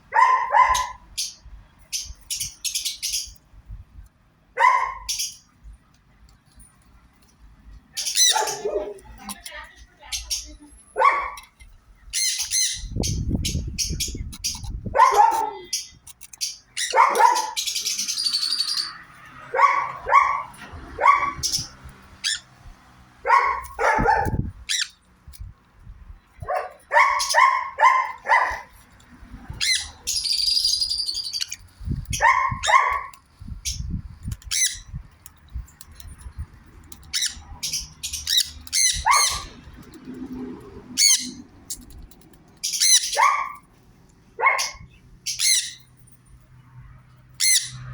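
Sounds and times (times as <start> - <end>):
parrots squawking and screeching: 4.6 - 5.4, 7.9 - 22.6, 23.3 - 25.1, 26.7 - 43.6, 44.4 - 46.0, 47.3 - 47.9.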